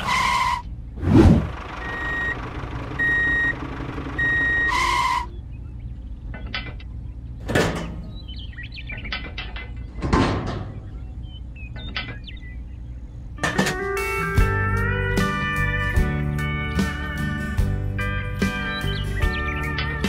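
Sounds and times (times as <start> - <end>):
brief rush: 1.0 - 1.6
horn-like beep: 4.2 - 5.3.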